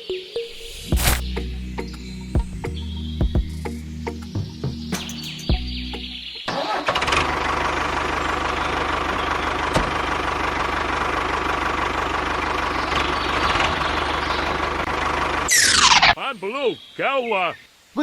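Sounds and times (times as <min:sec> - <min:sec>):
engine running with fast chatter: 0:04.9 - 0:16.2.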